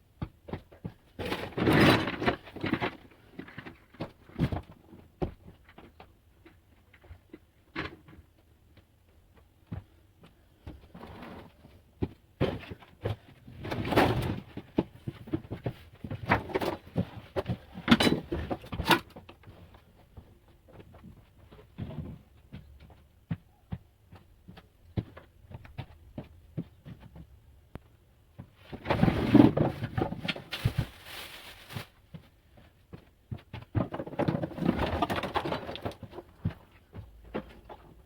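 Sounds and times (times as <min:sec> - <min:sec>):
rustling and scraping: 0:10.6 - 0:23.0, 0:28.4 - 0:38.0
objects knocking and clicking: 0:33.3 - 0:38.0.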